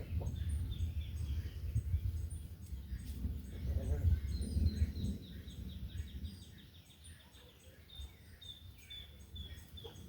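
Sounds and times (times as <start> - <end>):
birds singing: 0.0 - 10.0
low rumble of wind: 0.0 - 10.0.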